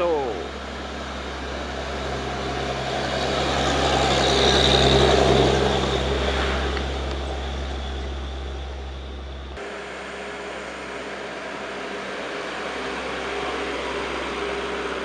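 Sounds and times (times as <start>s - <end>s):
low engine hum: 0.0s - 15.0s
truck passing by: 0.0s - 15.0s.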